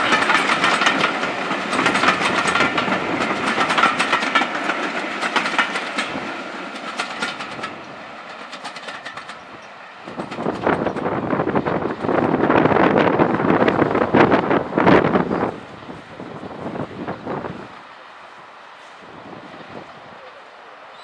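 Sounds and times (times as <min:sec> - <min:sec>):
train wheels clattering: 0:00.0 - 0:15.5
wind on microphone: 0:09.5 - 0:17.8.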